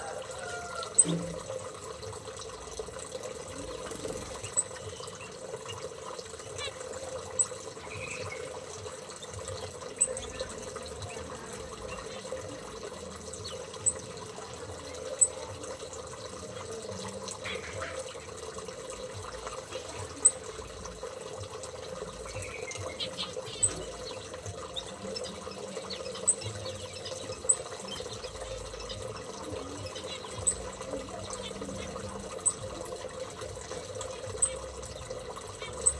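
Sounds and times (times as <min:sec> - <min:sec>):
small birds chirping: 0:00.0 - 0:35.9
water trickling: 0:00.0 - 0:35.9
faint chatter: 0:09.9 - 0:35.9.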